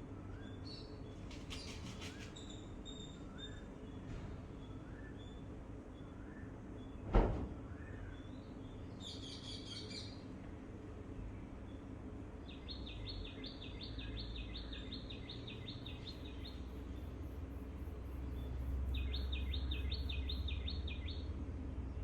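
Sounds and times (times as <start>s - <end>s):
songbird trilling: 18.9s - 21.2s.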